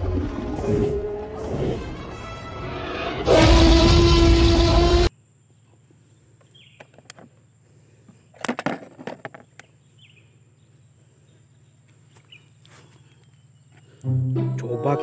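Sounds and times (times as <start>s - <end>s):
music: 0.1s - 3.4s, 14.0s - 15.0s
dinosaur roar: 2.8s - 5.1s
bird chirps: 5.4s - 7.0s, 9.4s - 15.0s
plastic toys clattering: 8.4s - 9.6s.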